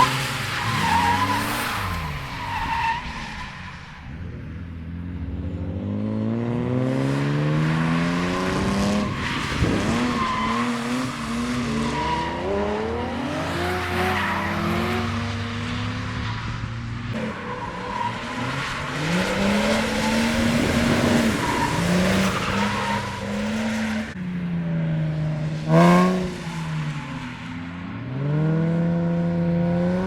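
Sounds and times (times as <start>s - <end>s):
car engine revving: 4.8s - 16.4s, 24.9s - 27.0s, 27.7s - 30.0s.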